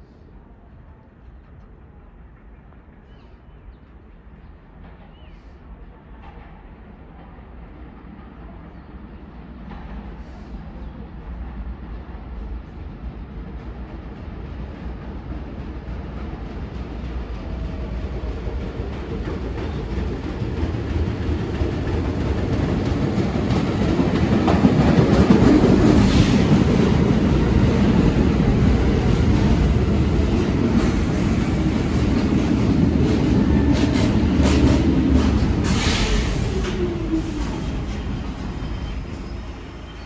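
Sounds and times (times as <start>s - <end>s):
subway train rumbling: 0.0s - 40.0s
wheels clacking over rail joints: 13.5s - 39.4s.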